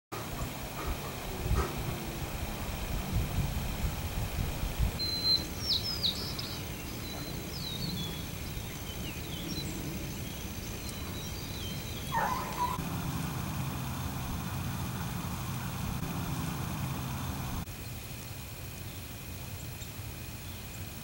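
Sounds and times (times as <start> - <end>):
low outdoor rumble: 0.2 - 21.0
small birds chirping and whistling: 5.0 - 12.8.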